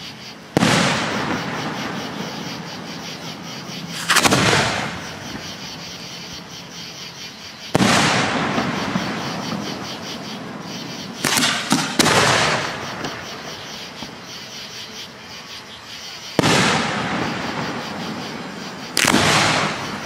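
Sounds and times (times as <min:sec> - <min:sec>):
firework shells booming: 0:00.0 - 0:06.0, 0:07.7 - 0:14.2, 0:16.4 - 0:20.0
rolling echo: 0:16.4 - 0:20.0.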